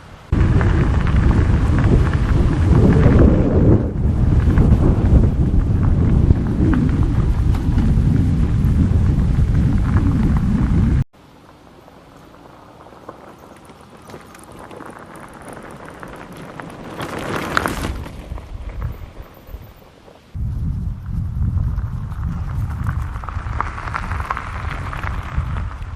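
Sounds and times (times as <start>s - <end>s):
wind rumbling on microphone: 0.0s - 11.1s, 12.3s - 25.9s
quiet steady rushing: 0.0s - 25.9s.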